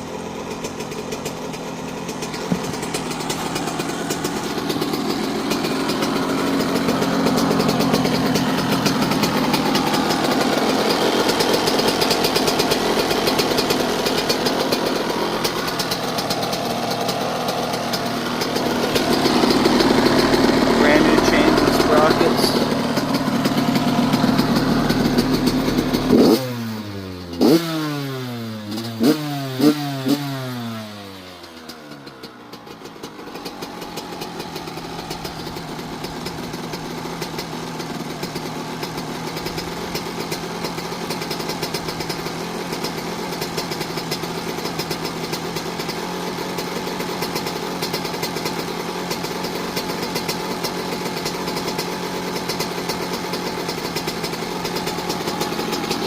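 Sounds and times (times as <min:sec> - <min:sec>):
two-stroke engine revving and idling: 0:00.0 - 0:56.0.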